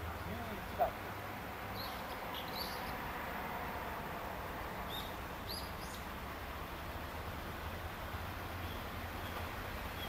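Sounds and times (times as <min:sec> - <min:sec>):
small birds chirping: 0:00.2 - 0:01.1, 0:01.7 - 0:03.1, 0:04.8 - 0:06.2, 0:07.6 - 0:10.0.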